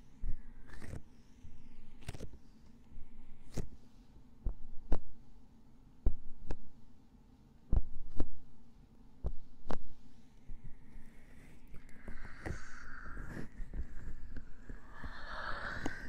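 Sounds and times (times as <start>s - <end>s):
low steady hum: 0.0s - 16.0s
heartbeat thumps: 6.1s - 6.4s, 7.7s - 8.2s.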